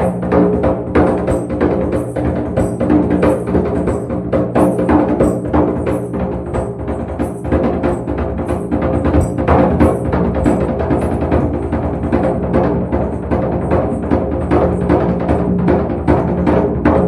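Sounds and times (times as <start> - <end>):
hand drums beating: 0.0 - 17.0.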